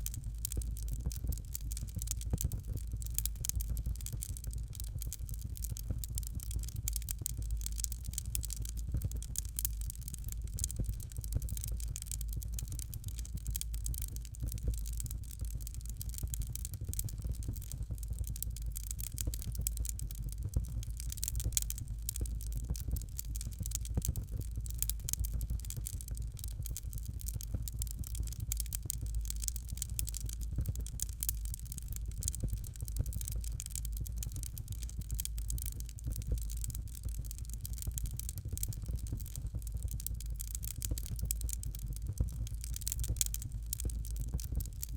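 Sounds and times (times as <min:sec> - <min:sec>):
fire crackling and popping: 0:00.0 - 0:44.9
low fire rumble: 0:00.0 - 0:44.9.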